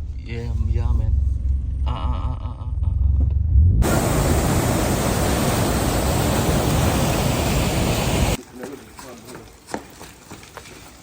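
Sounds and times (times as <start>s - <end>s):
vehicle ride rumble: 0.0s - 8.4s
waterfall rushing: 3.8s - 8.4s.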